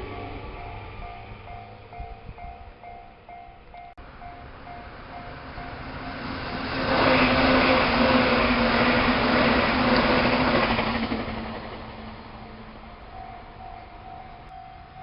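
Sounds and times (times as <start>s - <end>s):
train passing at speed: 0.0s - 15.0s
faint warning tone beeping: 13.2s - 15.0s.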